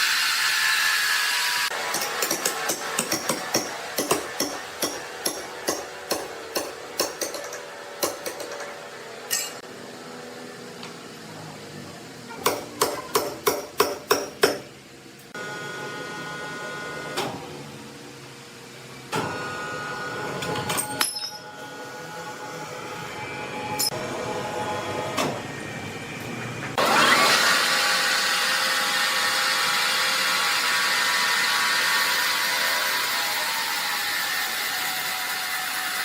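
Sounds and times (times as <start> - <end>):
sawmill machine humming: 26.8 - 36.0.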